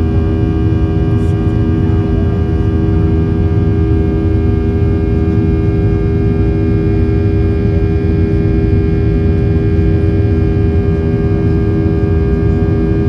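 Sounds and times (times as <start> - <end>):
jet engines rumbling and whining: 0.0 - 13.0.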